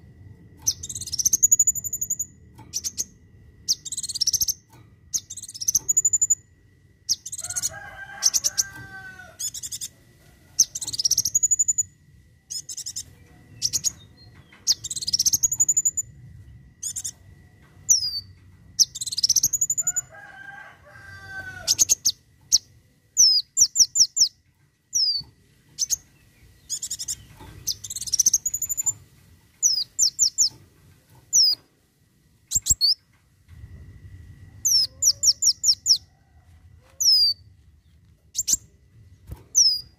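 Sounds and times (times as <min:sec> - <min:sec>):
sunbird singing high phrases: 0:00.6 - 0:03.1, 0:03.7 - 0:06.4, 0:07.1 - 0:09.9, 0:10.6 - 0:11.9, 0:12.5 - 0:16.1, 0:16.8 - 0:17.2, 0:21.6 - 0:29.0, 0:29.6 - 0:30.6, 0:34.6 - 0:36.1, 0:37.0 - 0:37.5.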